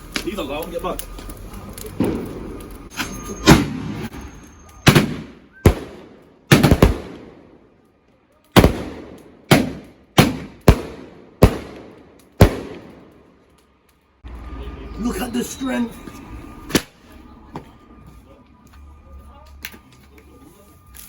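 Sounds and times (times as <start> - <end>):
fireworks bangs echoing: 1.8 - 7.8, 8.6 - 13.4, 16.6 - 17.0.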